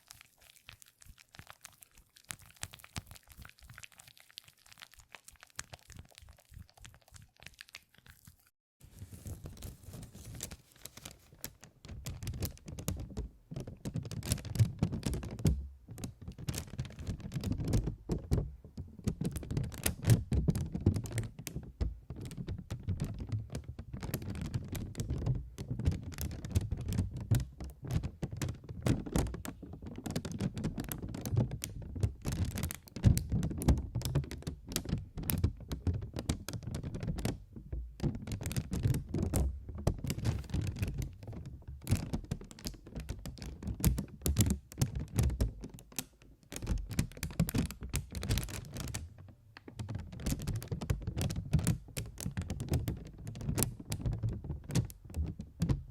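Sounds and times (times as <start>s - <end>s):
rapid tapping and clicking: 10.2s - 55.9s.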